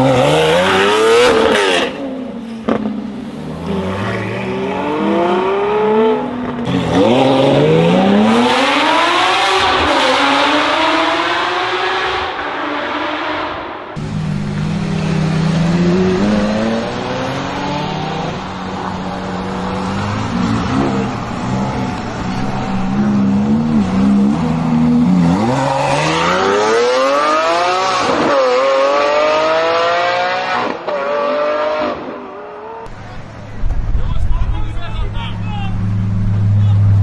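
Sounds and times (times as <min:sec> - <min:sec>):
supercar engine revving: 0:14.0 - 0:32.8.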